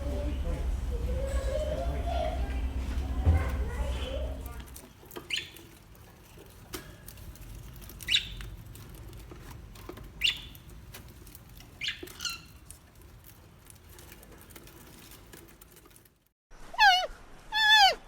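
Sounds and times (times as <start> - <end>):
small animal squeaking: 5.3 - 5.6, 10.2 - 10.6.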